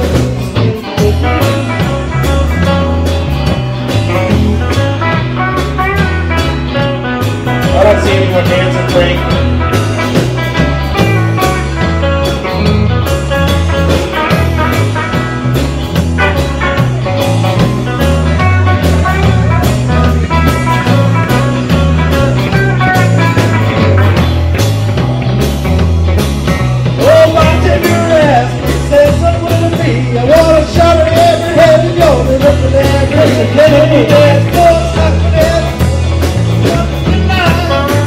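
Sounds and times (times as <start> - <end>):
person singing: 0.0 - 2.9, 6.4 - 9.6, 27.0 - 38.0
bass line: 0.0 - 38.0
drum beats: 0.0 - 38.0
guitar: 0.0 - 38.0.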